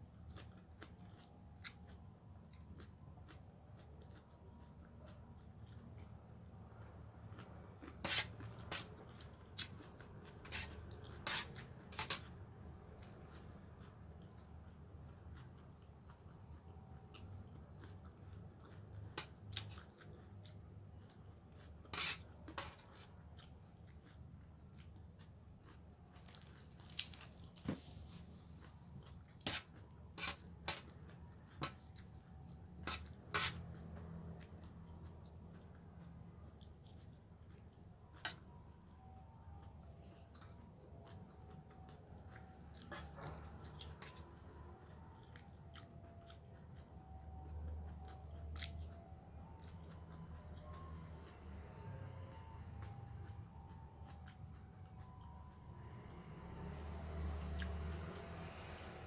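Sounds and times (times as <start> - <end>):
faint chewing: 0.0 - 56.0
crunching raw vegetables: 25.6 - 32.0.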